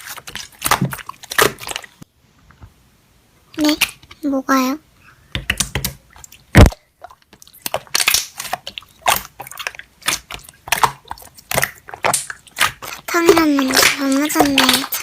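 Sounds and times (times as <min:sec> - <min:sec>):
slime squishing with wet pops: 0:00.0 - 0:02.1, 0:05.3 - 0:15.0
loud sharp pop: 0:06.6 - 0:06.8.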